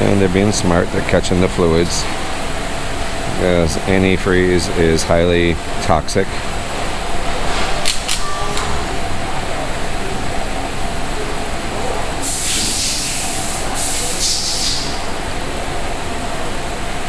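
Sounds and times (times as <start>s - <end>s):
electric fan blowing: 0.0s - 17.0s
hissing spray bursts: 12.2s - 15.2s.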